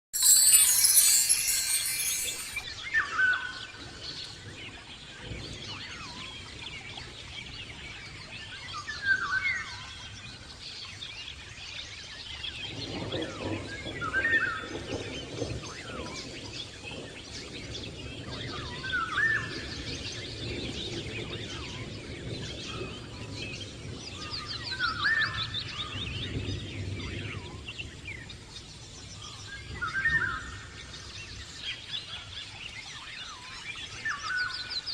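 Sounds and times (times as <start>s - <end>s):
bright chime-like sound: 0.1s - 3.0s.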